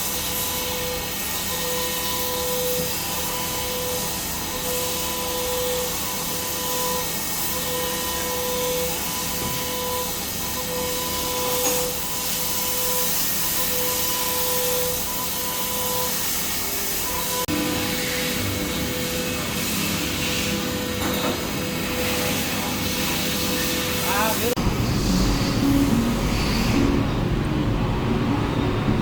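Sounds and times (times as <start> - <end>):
machine hiss: 0.0 - 27.4
pulsing mid-pitched tone: 24.6 - 29.0.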